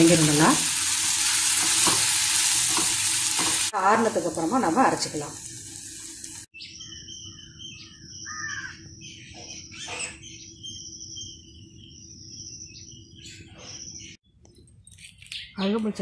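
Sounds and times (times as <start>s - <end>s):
harsh bird calls: 6.6s - 14.2s.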